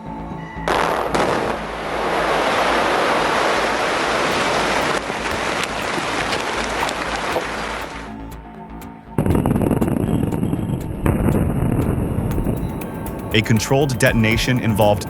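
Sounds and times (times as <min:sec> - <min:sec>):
debris cracking: 0:02.5 - 0:08.1.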